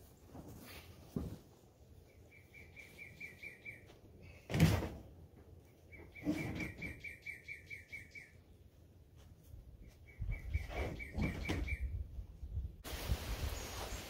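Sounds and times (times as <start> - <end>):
bird trilling: 5.9 - 8.4.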